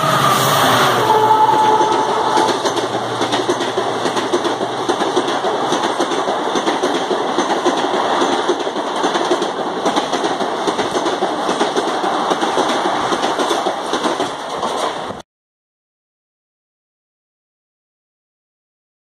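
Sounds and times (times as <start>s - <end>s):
train rushing past clattering: 0.0s - 15.2s.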